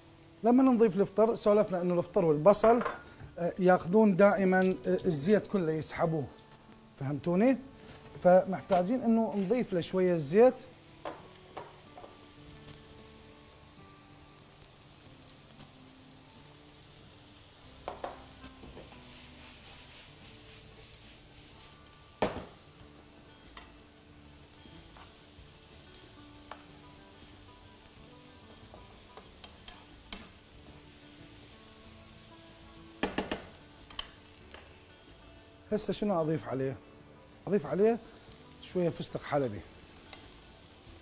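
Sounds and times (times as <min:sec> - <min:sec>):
vegetables sizzling in oil: 0:00.0 - 0:41.0
spoon knocking against pan: 0:33.0 - 0:33.5.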